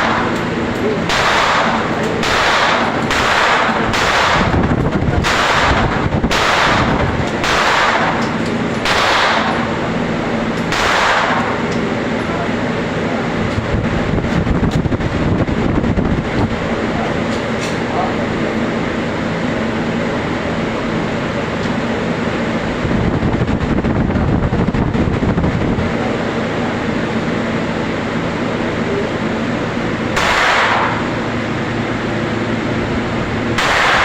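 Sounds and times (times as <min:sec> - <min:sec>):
steady low hum: 0:00.0 - 0:34.0
gunshots with ringing echo: 0:01.1 - 0:04.6, 0:05.2 - 0:09.9, 0:10.7 - 0:11.6, 0:30.1 - 0:31.2, 0:33.6 - 0:34.0.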